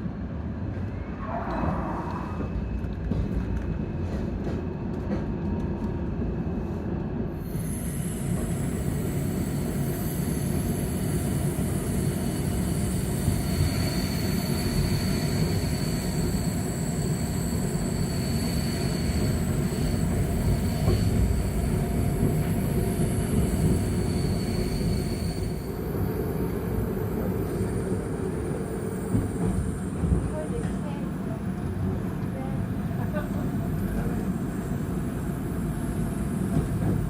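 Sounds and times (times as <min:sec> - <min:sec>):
train wheels rumbling on rail: 0:00.0 - 0:37.0
faint high squeal: 0:00.9 - 0:02.8.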